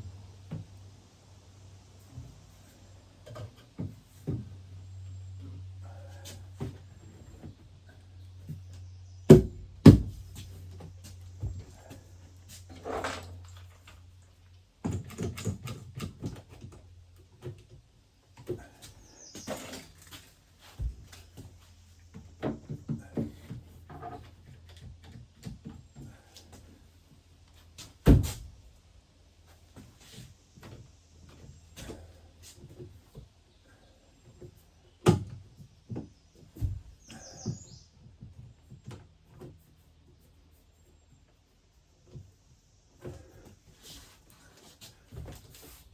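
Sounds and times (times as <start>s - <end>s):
cabinet knocks and clunks: 9.3s - 10.2s, 28.0s - 28.4s.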